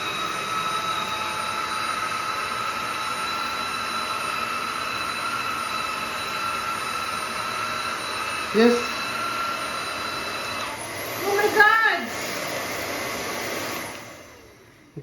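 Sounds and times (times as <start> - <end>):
vacuum cleaner motor whining: 0.0 - 15.0.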